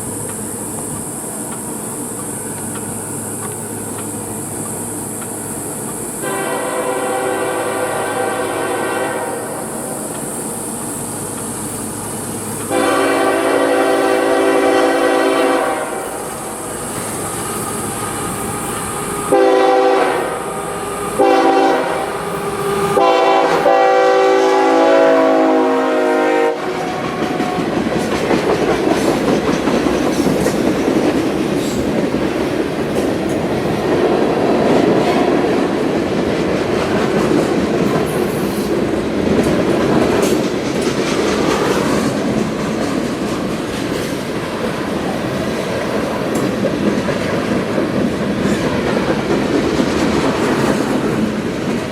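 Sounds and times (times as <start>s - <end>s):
train rumbling past: 0.0s - 51.9s
locomotive air horn blasts: 6.2s - 9.9s, 12.7s - 16.5s, 19.2s - 27.7s
wheels clattering on rail: 26.5s - 51.9s.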